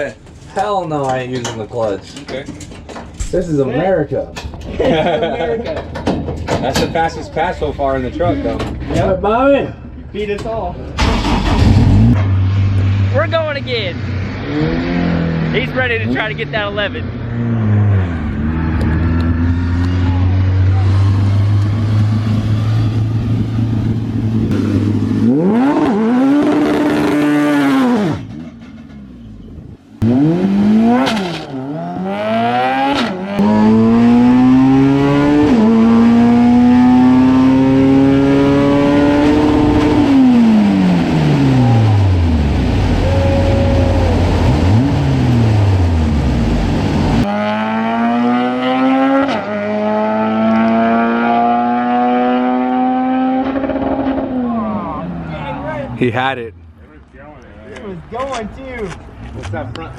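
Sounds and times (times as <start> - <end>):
racing truck engine revving: 11.0 - 28.3, 30.0 - 55.6.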